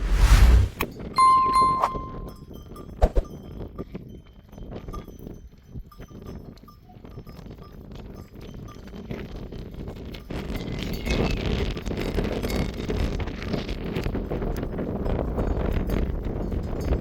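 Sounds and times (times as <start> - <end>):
animal bells tinkling: 1.2 - 11.4.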